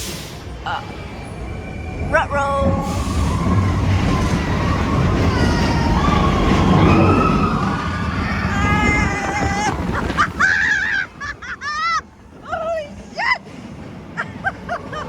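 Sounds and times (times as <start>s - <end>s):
roller coaster rumbling on track: 0.0s - 15.0s
riders screaming: 2.8s - 12.1s.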